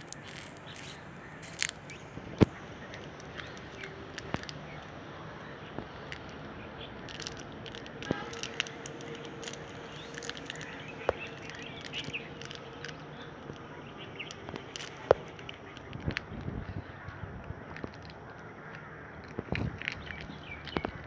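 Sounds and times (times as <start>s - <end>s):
birds chirping: 0.0s - 21.0s
outdoor background noise: 0.0s - 21.0s
sharp clicks: 5.8s - 21.0s.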